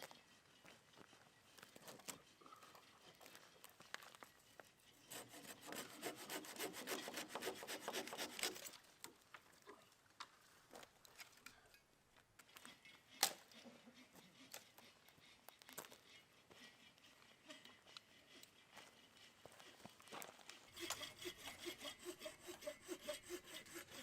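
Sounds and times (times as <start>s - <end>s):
rasping scraping strokes: 1.6s - 8.9s, 12.4s - 24.0s.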